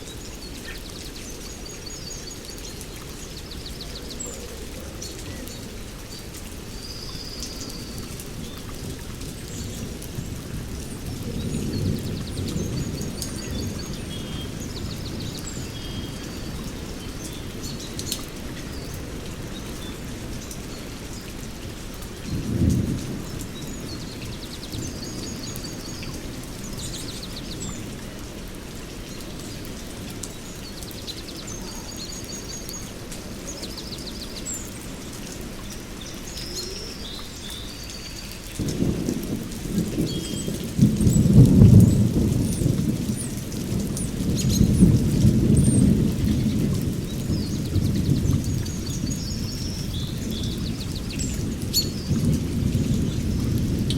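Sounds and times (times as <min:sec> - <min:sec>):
songbirds chirping and trilling: 0:22.2 - 0:39.2
thunder rumble: 0:38.5 - 0:53.9.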